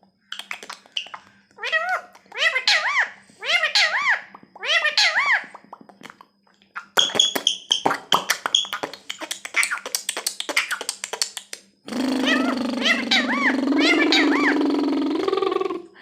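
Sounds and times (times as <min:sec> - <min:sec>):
parrot clicking and chirping: 0:00.3 - 0:14.6
steady low hum: 0:07.5 - 0:16.0.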